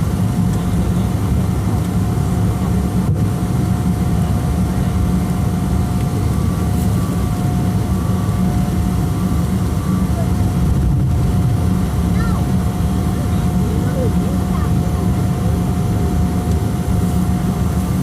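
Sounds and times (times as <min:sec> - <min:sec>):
faint steady whine: 0:00.0 - 0:18.0
jet engine rumble in cabin: 0:00.0 - 0:18.0.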